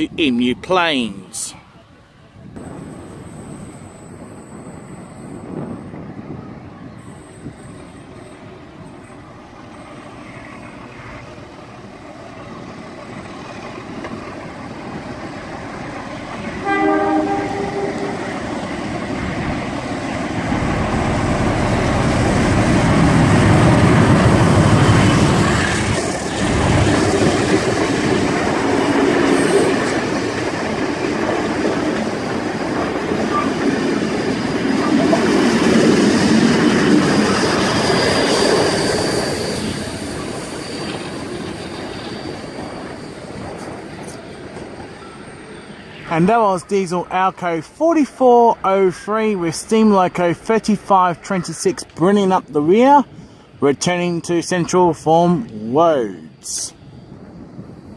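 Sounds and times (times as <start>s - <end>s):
diesel locomotive rumble: 2.4s - 53.6s
train horn blast: 16.6s - 18.4s.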